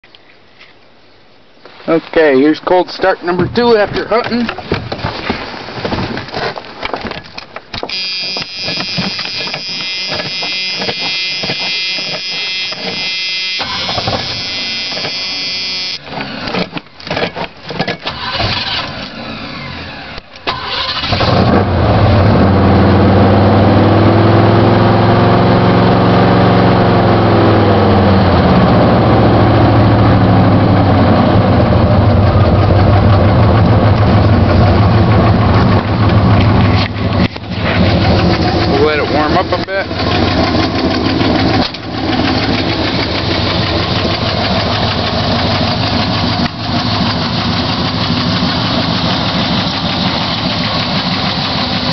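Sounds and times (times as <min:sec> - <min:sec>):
steady high-pitched tone: 0:07.9 - 0:16.0
truck engine idling: 0:29.9 - 0:51.9.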